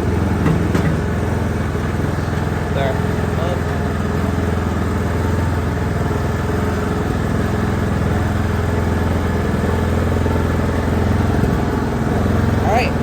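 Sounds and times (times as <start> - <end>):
lawnmower engine running: 0.0 - 13.0.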